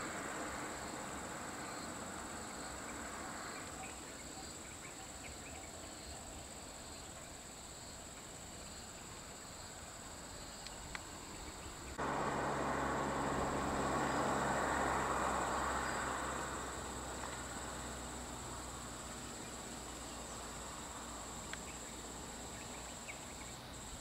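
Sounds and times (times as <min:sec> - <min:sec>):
faint outdoor ambience: 0:00.0 - 0:24.0
high insect drone: 0:00.0 - 0:24.0
car engines idling: 0:11.5 - 0:24.0.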